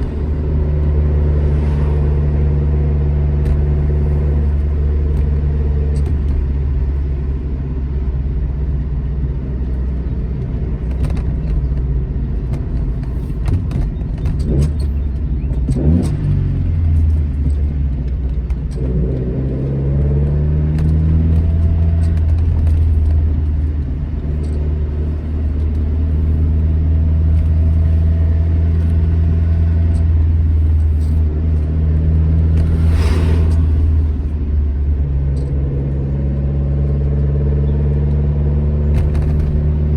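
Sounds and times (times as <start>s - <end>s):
car engine revving: 0.0s - 5.8s, 27.1s - 38.1s
brief hiss: 32.6s - 34.4s.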